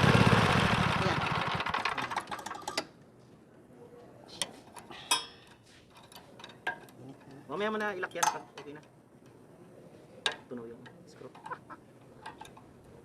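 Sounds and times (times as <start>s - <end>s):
mower engine shutting off: 0.0s - 2.6s.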